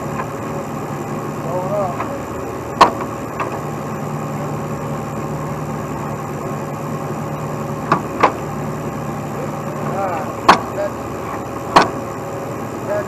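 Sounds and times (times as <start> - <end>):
truck engine running: 0.0 - 13.0
sharp knocks: 2.8 - 3.6, 7.8 - 8.4, 10.4 - 10.8, 11.7 - 12.0.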